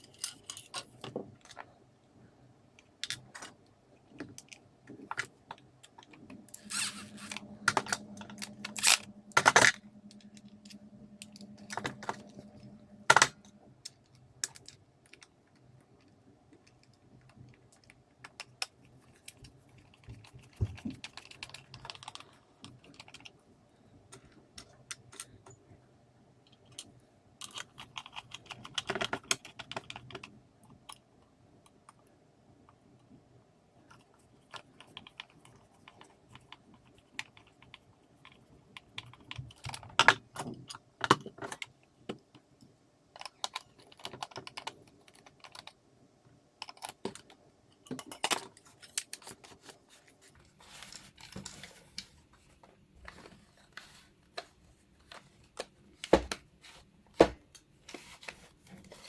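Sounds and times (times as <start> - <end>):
small plastic parts clicking: 33.9 - 45.8, 46.6 - 49.8.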